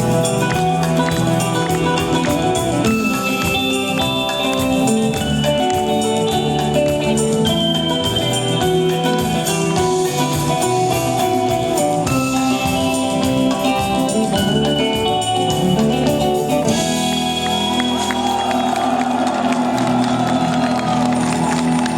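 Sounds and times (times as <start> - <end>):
electric guitar: 0.0 - 21.9
rock band playing: 0.0 - 21.9.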